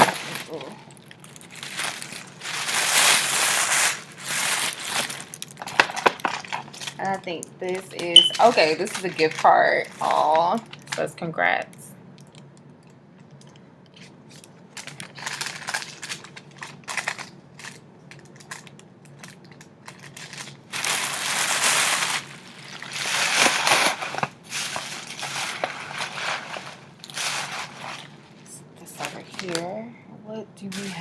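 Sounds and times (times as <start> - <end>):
paper rustling and crinkling: 0.0 - 7.2, 14.0 - 29.7, 30.7 - 31.0.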